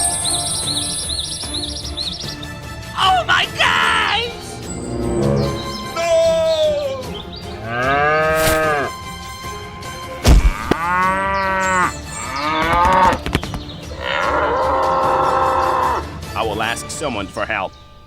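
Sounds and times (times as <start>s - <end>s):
cow mooing: 7.6s - 8.9s, 14.0s - 16.1s.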